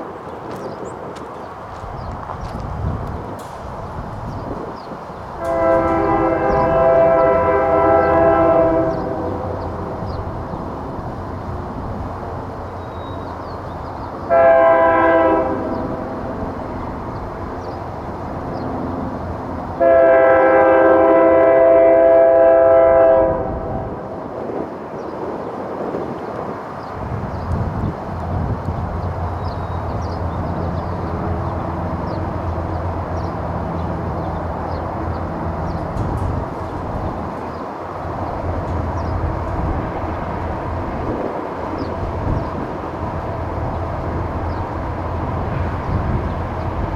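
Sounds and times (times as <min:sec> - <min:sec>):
low rumble of train: 0:00.0 - 0:46.9
locomotive air horn blasts: 0:05.4 - 0:09.9, 0:14.3 - 0:16.5, 0:18.7 - 0:24.1.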